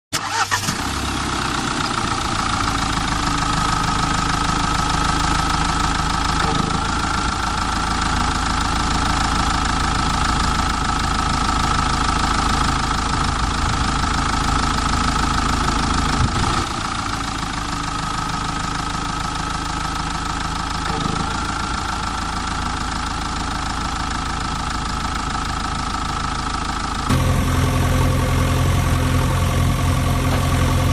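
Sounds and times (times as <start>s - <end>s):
heavy vehicle engine idling: 0.3s - 30.9s
high whine: 27.1s - 30.9s.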